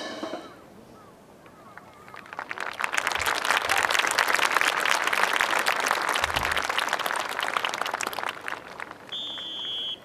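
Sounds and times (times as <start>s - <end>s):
crowd applauding: 1.7s - 10.0s.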